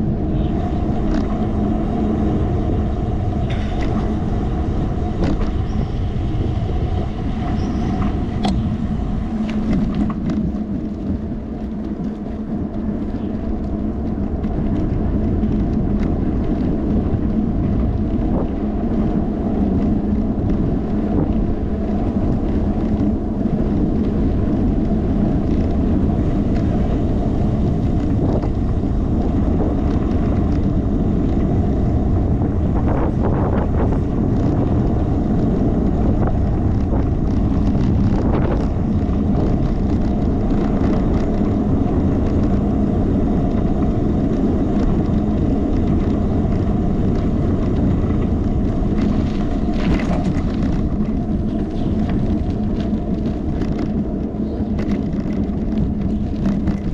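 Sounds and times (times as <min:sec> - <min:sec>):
bicycle road noise: 0:00.0 - 0:56.9
wind noise on microphone: 0:00.0 - 0:56.9.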